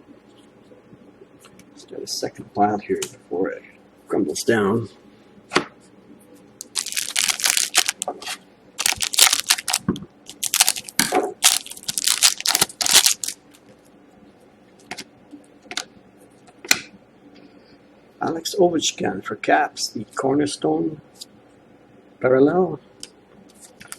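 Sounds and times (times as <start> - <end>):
wrappers rustling and crinkling: 6.6 - 13.5.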